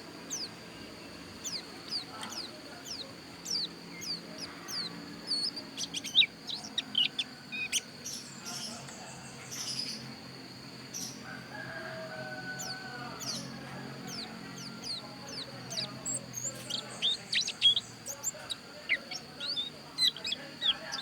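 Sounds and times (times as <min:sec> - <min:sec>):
white-eye singing: 0:00.0 - 0:09.4, 0:10.9 - 0:21.0
lower bird call: 0:11.0 - 0:21.0.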